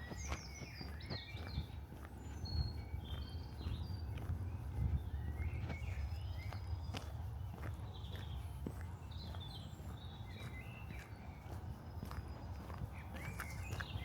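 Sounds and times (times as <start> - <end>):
footsteps walking: 0.0 - 14.0
small birds singing: 0.0 - 14.0.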